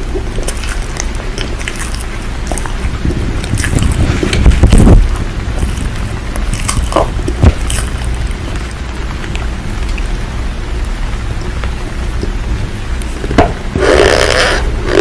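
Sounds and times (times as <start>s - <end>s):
deep rumble: 0.0s - 15.0s
steady rain: 2.1s - 6.5s, 7.1s - 13.2s.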